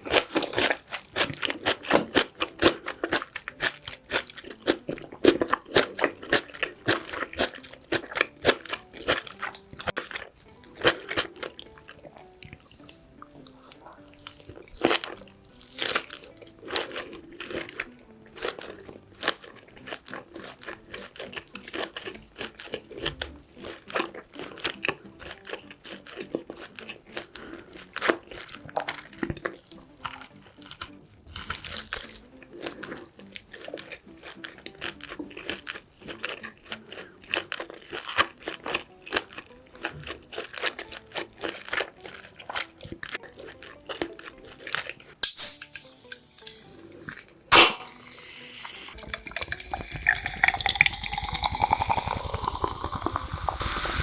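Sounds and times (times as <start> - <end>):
chewing and crunching: 0.0 - 45.2, 48.8 - 54.0
mouth clicks: 45.2 - 54.0.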